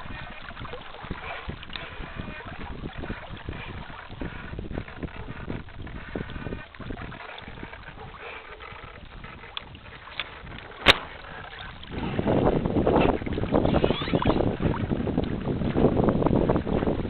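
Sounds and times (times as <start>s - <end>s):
water splashing against hull: 0.0s - 17.0s
sharp click: 10.8s - 11.1s.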